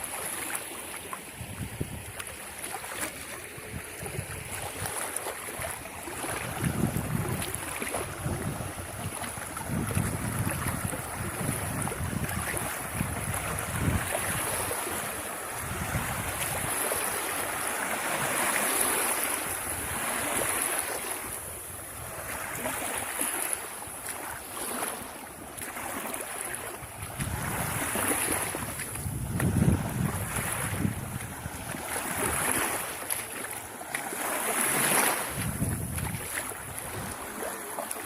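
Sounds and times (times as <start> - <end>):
waves washing on shore: 0.0 - 38.0
wind gusting on microphone: 1.4 - 2.2, 6.2 - 17.2, 27.0 - 32.8, 35.0 - 37.2.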